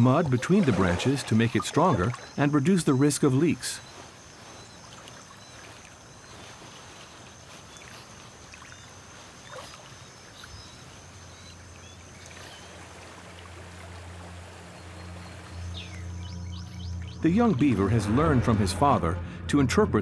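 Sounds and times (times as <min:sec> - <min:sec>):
faint chirps: 0:00.0 - 0:12.8
water sloshing and splashing: 0:00.0 - 0:17.2
low music drone: 0:15.0 - 0:20.0.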